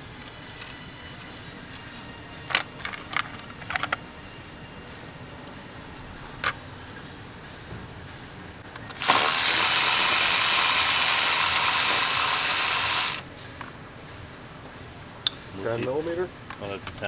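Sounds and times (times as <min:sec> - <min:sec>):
power tool spinning fastener: 0:08.9 - 0:13.2.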